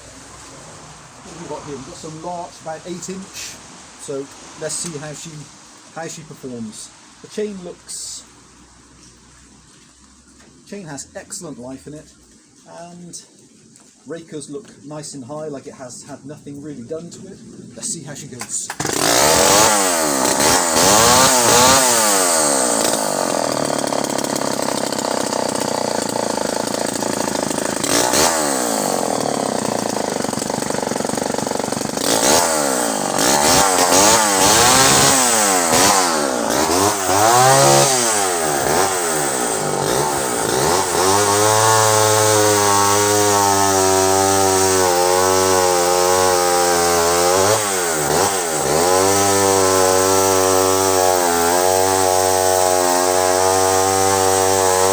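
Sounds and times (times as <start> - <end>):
chainsaw revving: 1.2 - 5.2, 18.4 - 54.9
chainsaw cutting log: 1.2 - 5.4, 18.4 - 54.9.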